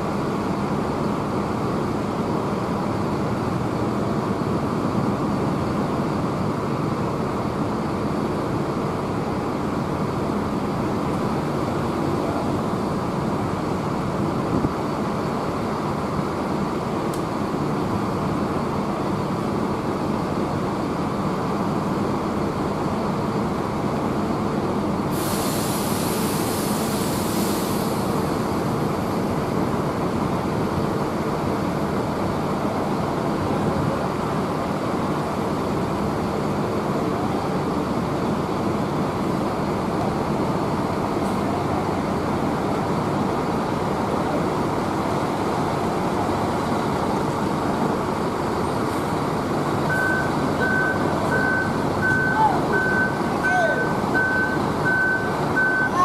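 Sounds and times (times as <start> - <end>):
bus engine idling: 0.0 - 56.0
loud hiss: 25.1 - 28.6.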